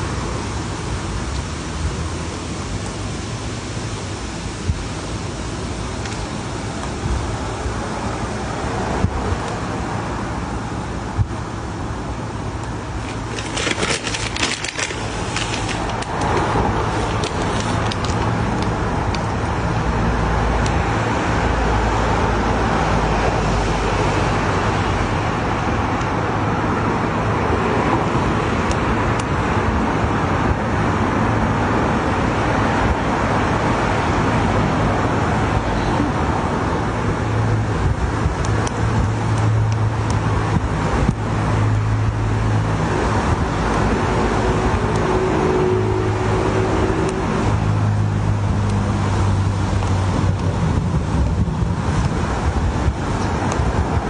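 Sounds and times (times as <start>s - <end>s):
steady rumbling noise: 0.0s - 54.0s.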